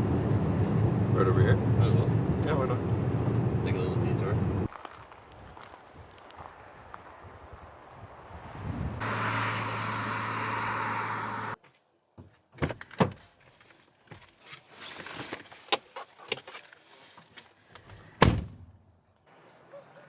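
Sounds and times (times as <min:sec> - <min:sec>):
car running with road noise: 0:00.0 - 0:04.8, 0:06.2 - 0:11.6.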